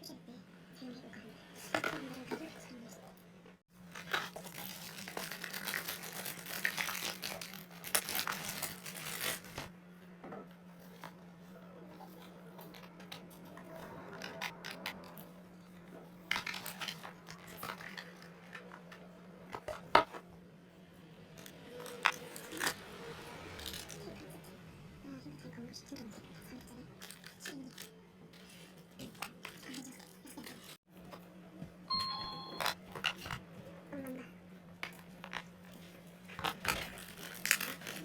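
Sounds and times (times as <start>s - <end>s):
packaging rustling and tearing: 3.8s - 9.7s, 16.3s - 18.8s, 34.9s - 38.0s.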